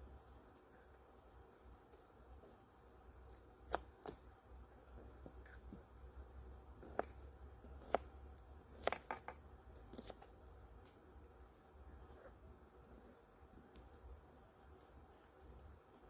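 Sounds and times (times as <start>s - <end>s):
knife chopping on board: 7.8s - 8.0s.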